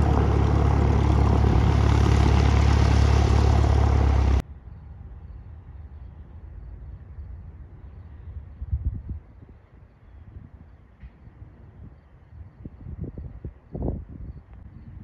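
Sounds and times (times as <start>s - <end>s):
propeller aircraft engine running: 0.0s - 4.4s
wind rumble on microphone: 0.0s - 15.0s.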